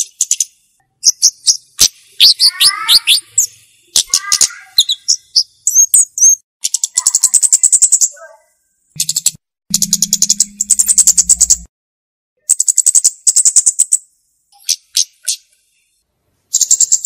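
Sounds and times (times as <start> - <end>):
bird chirping and trilling: 0.0 - 11.7, 12.4 - 15.6, 16.5 - 17.0.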